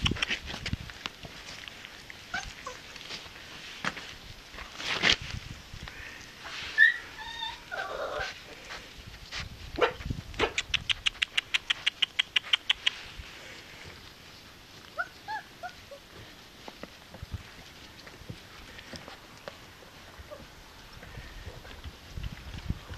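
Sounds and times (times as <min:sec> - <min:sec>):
puppies whimpering: 0:02.3 - 0:03.0, 0:06.7 - 0:08.5, 0:14.9 - 0:16.1.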